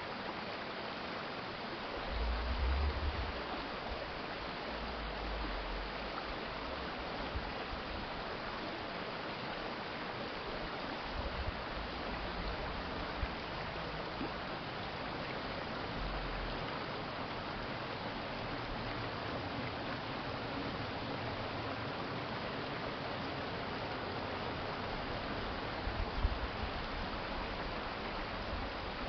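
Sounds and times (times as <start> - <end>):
rushing stream water: 0.0 - 29.0
low rumble: 2.0 - 6.0.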